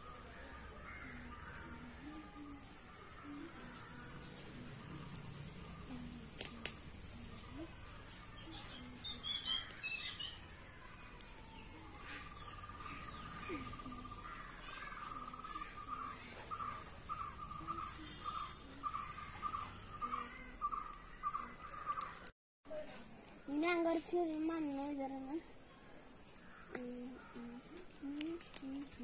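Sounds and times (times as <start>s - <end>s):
bird calling: 7.3s - 22.3s.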